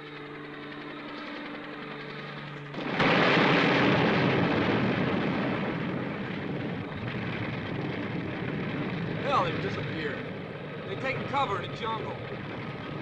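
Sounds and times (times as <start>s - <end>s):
steady low hum: 0.0s - 13.0s
loud explosion: 2.8s - 10.6s.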